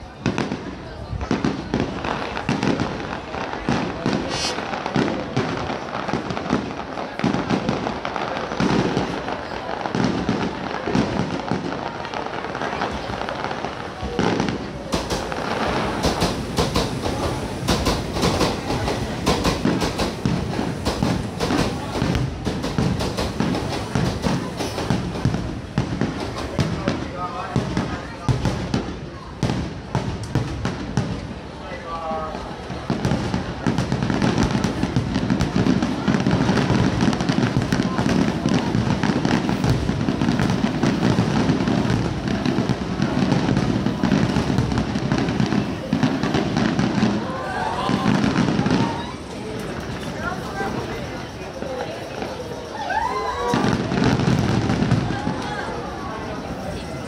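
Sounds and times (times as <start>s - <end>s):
fireworks shells bursting: 2.1s - 9.2s, 12.6s - 31.3s, 32.8s - 47.2s, 47.9s - 57.0s
rapid crackling pops: 11.8s - 28.8s
train wheels clattering over rail joints: 14.9s - 25.3s.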